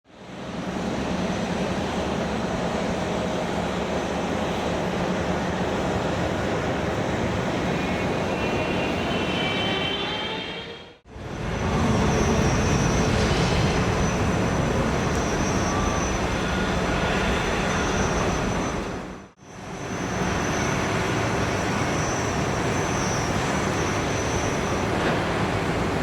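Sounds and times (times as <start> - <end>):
jet engine roar: 0.2 - 26.0
thin rising engine whine: 5.7 - 25.6.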